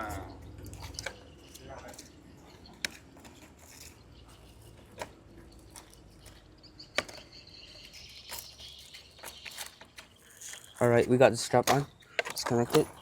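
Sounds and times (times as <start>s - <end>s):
clicks of plastic parts: 11.6s - 13.0s.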